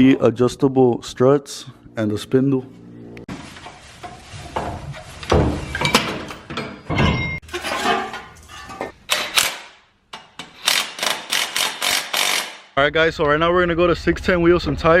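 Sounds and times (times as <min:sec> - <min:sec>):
metal tools clinking and knocking: 0:05.3 - 0:09.5.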